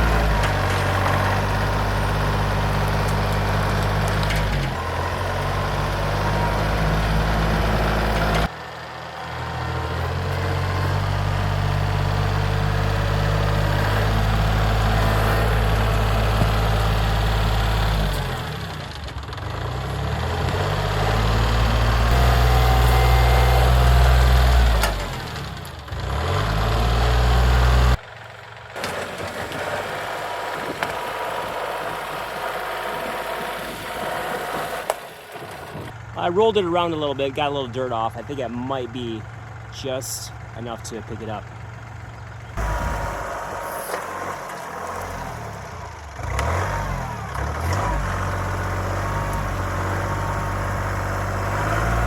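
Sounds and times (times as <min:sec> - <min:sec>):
tractor diesel engine running hard: 0:00.0 - 0:52.0.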